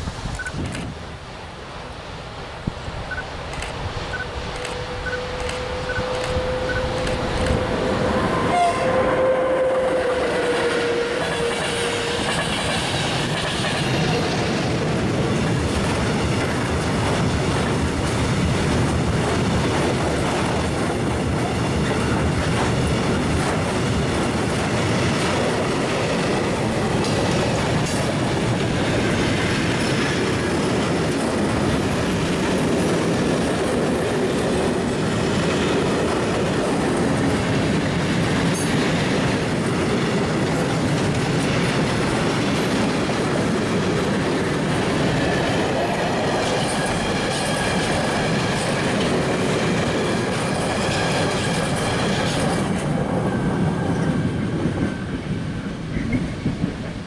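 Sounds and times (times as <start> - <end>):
train wheels rumbling on rails: 2.6 - 57.0
locomotive held tone: 4.1 - 12.4.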